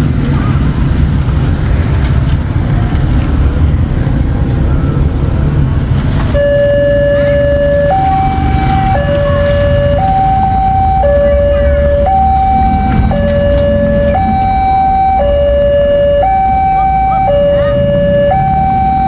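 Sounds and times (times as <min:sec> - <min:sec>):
low rumble of road traffic: 0:00.0 - 0:19.0
level crossing two-tone alarm: 0:06.4 - 0:19.0.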